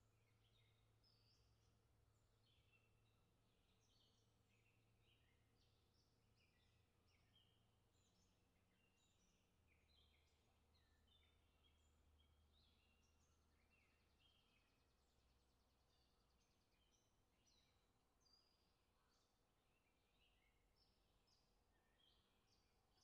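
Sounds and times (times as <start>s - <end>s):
faint bird chirping: 0.0s - 23.0s.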